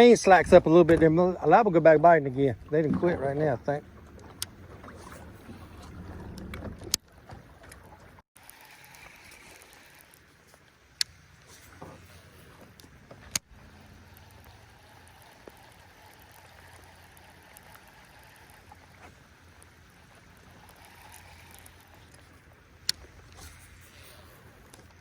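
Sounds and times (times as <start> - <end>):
rain falling on a pond: 13.6 - 22.9.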